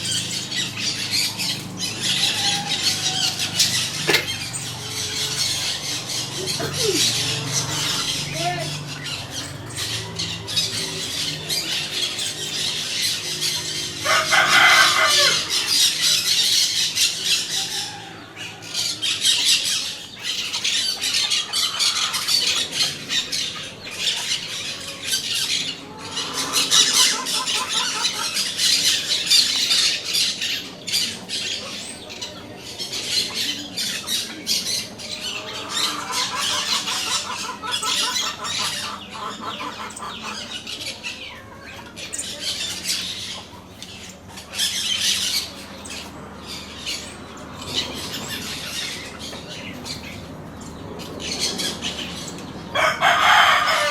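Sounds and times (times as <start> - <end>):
parakeets chattering and squawking: 0.0 - 53.9
quick rattling calls: 18.6 - 53.9.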